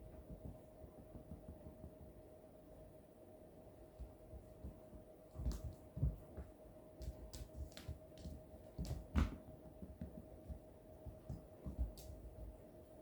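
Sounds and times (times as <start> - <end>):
cats playing on floor: 0.0 - 13.0
faint steady hum: 0.0 - 13.0.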